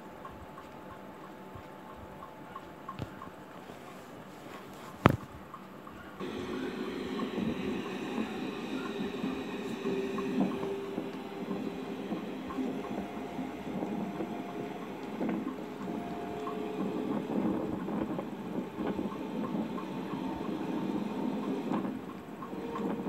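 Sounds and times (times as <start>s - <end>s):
train wheels rumbling on rails: 6.2s - 23.0s.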